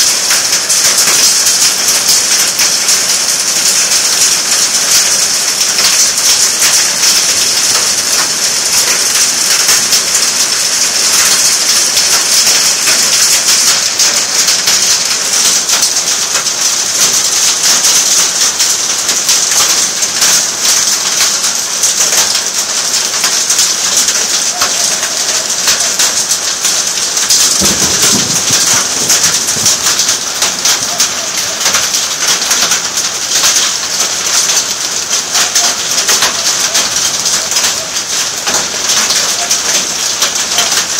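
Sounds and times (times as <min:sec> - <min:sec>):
heavy rain and hail: 0:00.0 - 0:40.9
low rumble of thunder: 0:27.4 - 0:30.2.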